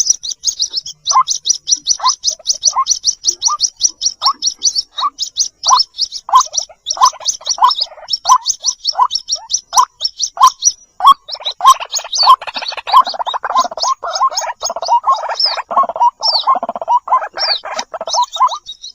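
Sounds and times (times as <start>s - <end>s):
waterhen chicks chirping: 0.0s - 18.9s.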